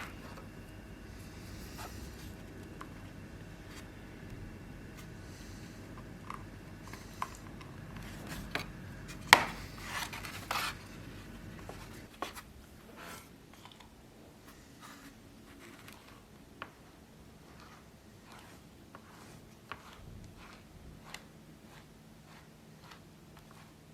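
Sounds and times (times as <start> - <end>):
low hum: 0.0 - 12.9.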